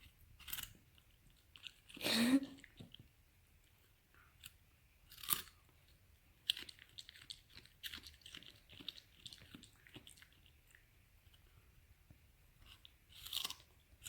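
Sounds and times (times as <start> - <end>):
dog chewing crunchy food: 0.0 - 2.0, 4.5 - 11.5, 12.5 - 14.0.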